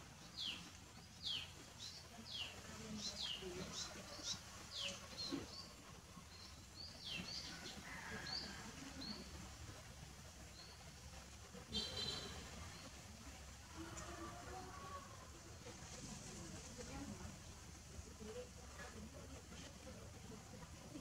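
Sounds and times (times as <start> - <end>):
small bird chirping: 11.8 - 12.9.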